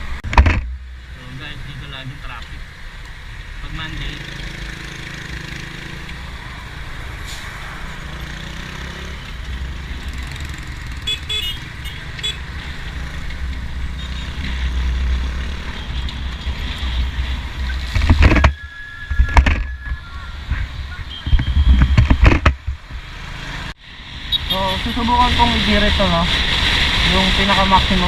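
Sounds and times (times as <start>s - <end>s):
traffic rumble: 0.0s - 28.0s
motorcycle engine: 4.0s - 6.7s, 7.9s - 18.6s.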